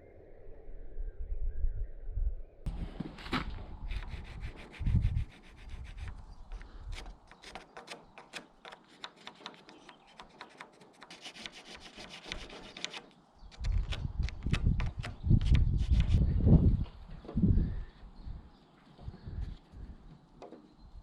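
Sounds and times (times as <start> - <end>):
hand tool rubbing wood: 3.3 - 13.1.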